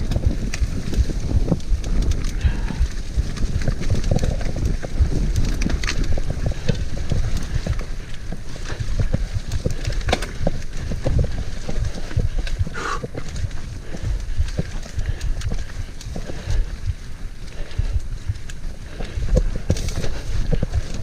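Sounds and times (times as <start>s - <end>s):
mountain bike rattling over trail: 0.0s - 21.0s
tyre noise: 0.0s - 21.0s
wind buffeting microphone: 0.0s - 21.0s.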